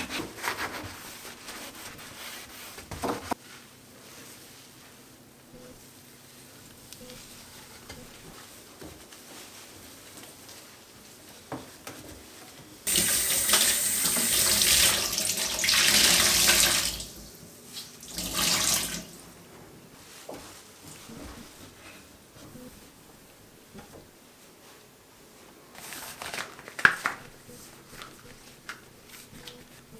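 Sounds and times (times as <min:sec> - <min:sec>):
tap water running into sink: 0:12.9 - 0:19.3.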